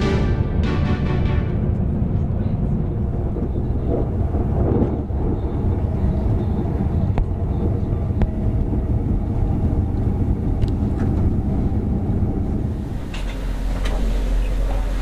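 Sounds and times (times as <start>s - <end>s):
train rumbling along track: 0.0s - 15.0s.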